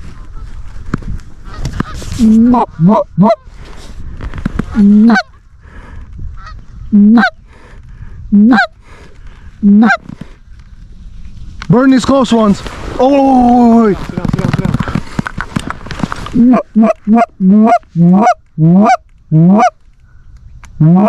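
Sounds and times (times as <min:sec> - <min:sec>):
faint goose honking: 0:01.4 - 0:03.6, 0:04.7 - 0:05.5, 0:06.4 - 0:07.4, 0:08.3 - 0:08.8, 0:09.6 - 0:10.1, 0:16.4 - 0:21.0
goose honking: 0:01.4 - 0:03.6, 0:04.7 - 0:05.4, 0:06.4 - 0:07.4, 0:08.4 - 0:08.8, 0:09.6 - 0:10.1, 0:16.4 - 0:19.8, 0:20.8 - 0:21.0.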